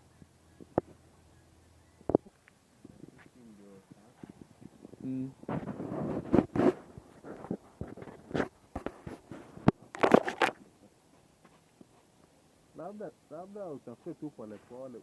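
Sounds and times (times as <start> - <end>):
rustling through dry vegetation: 0.0 - 15.0.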